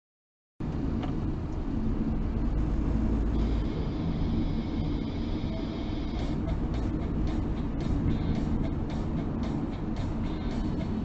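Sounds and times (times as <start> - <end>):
car engine and road noise: 0.6 - 11.0.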